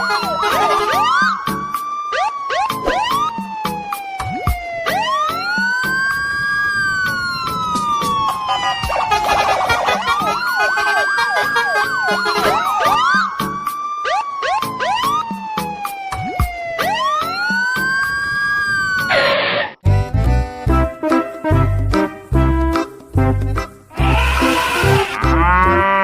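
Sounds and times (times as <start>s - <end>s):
siren-like wailing tones: 0.0s - 19.5s, 23.9s - 26.0s
steady beat: 8.4s - 12.9s.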